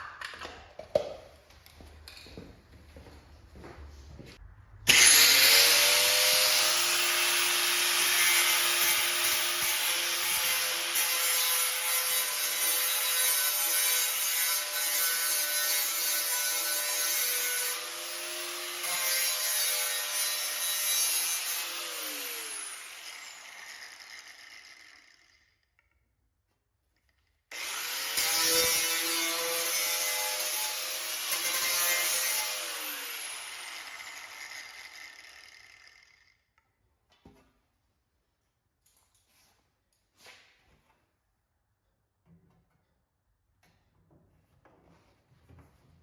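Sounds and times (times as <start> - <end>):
power cutting tool cutting metal: 4.9 - 25.4, 27.5 - 36.2.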